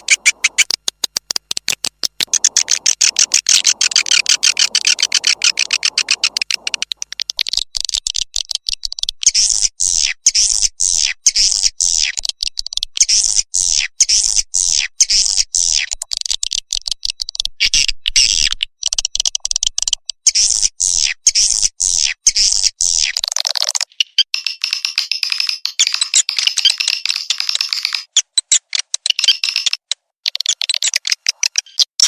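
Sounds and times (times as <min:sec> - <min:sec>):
high twittering chirps: 0:00.0 - 0:00.7, 0:02.3 - 0:07.4
fast clicking ticks: 0:00.0 - 0:09.7, 0:10.4 - 0:13.4, 0:15.0 - 0:20.7, 0:22.9 - 0:32.0.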